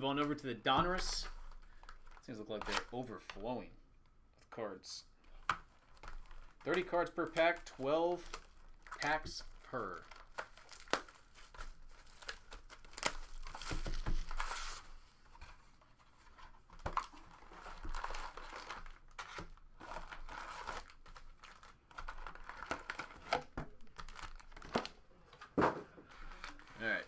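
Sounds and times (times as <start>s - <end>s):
plastic wrapping crinkling and tearing: 1.3s - 3.0s, 5.2s - 15.0s, 16.4s - 25.0s, 26.1s - 27.0s.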